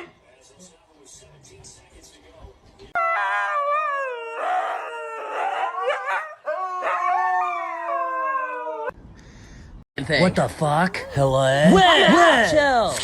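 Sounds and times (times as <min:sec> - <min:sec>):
dog howling: 0:03.0 - 0:09.0.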